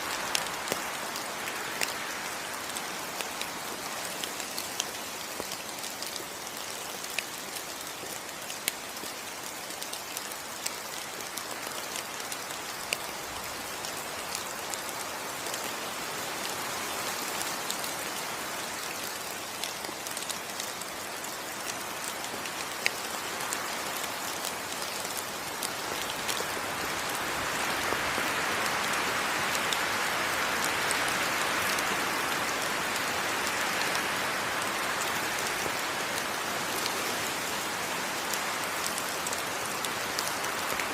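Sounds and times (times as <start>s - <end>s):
rain falling on foliage: 0.0s - 40.9s
sharp raindrop ticks: 0.1s - 15.8s, 17.4s - 27.2s.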